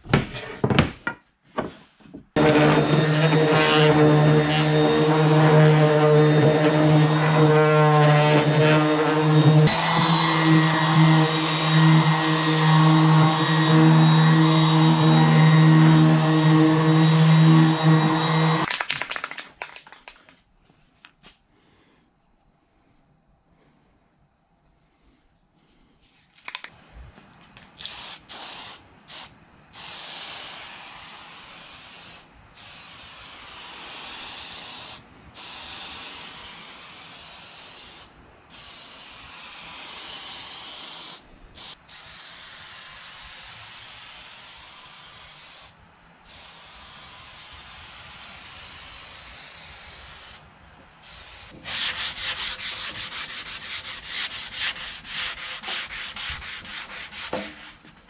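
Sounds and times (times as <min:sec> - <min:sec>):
sanding strokes: 0:02.4 - 0:18.7, 0:51.4 - 0:58.0.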